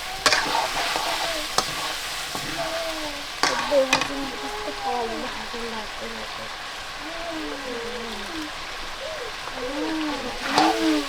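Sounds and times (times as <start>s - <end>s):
utensil clicking against pan: 0.0s - 4.4s
food sizzling in a pan: 0.0s - 11.0s.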